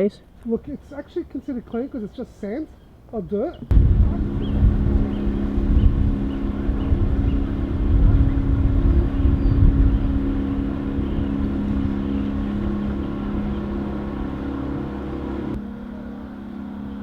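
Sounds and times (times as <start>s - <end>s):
motorboat engine running: 3.7s - 17.0s.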